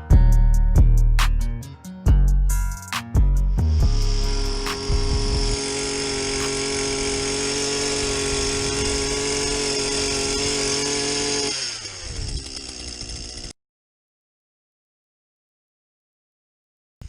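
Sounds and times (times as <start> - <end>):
power ice auger drilling: 3.6 - 13.6.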